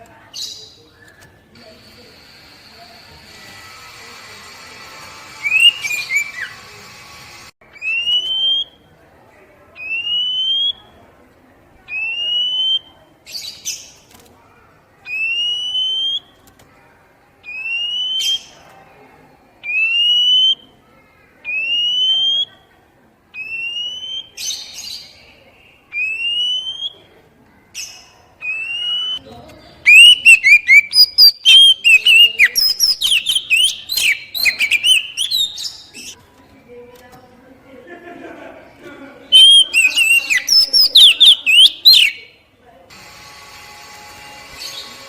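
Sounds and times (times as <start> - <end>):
harsh bird chips: 5.4 - 6.6, 29.9 - 36.2
bird song fast and varied: 5.4 - 6.7, 27.8 - 29.2, 29.8 - 36.2, 39.3 - 42.4.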